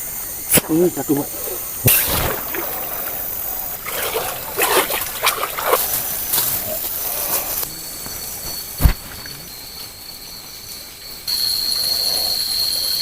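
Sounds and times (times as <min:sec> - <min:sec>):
chorus of night insects: 0:00.0 - 0:13.0
heavy thump: 0:08.8 - 0:09.2.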